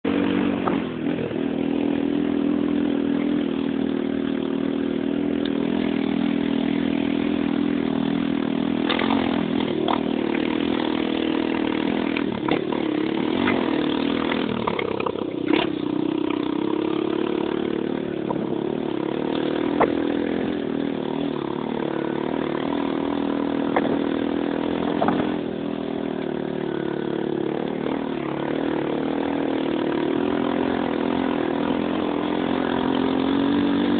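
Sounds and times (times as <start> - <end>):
motorcycle engine running at low revs: 0.0 - 33.9.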